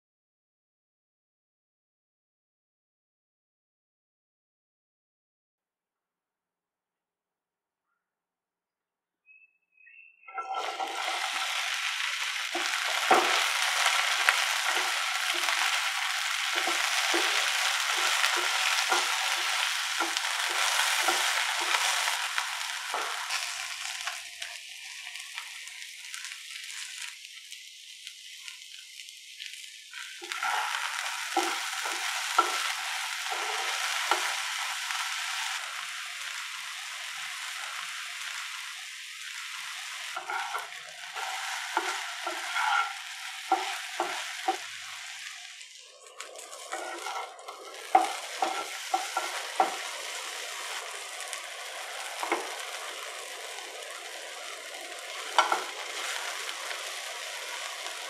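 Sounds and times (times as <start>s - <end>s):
okra sizzling in hot oil: 10.2s - 58.0s
wooden spatula scraping pan: 10.4s - 24.2s, 30.2s - 35.6s, 40.2s - 44.7s, 46.4s - 50.8s, 52.1s - 52.7s, 55.1s - 56.3s.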